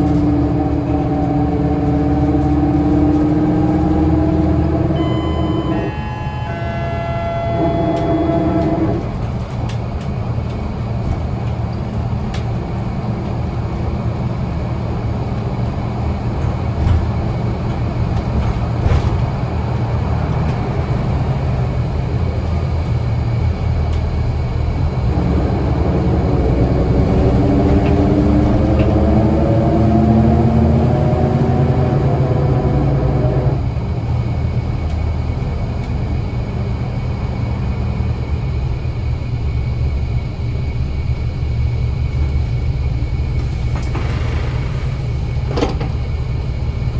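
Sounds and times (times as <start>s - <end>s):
bus accelerating whine: 0.0s - 46.9s
bus engine drone: 0.0s - 46.9s.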